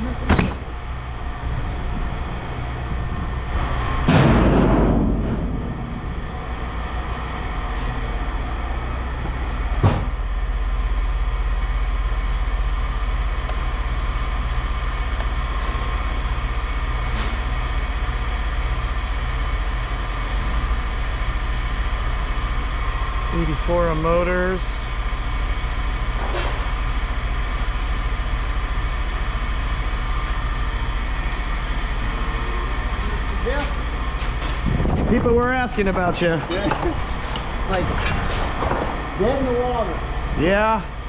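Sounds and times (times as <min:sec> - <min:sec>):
low engine hum: 0:00.0 - 0:41.0.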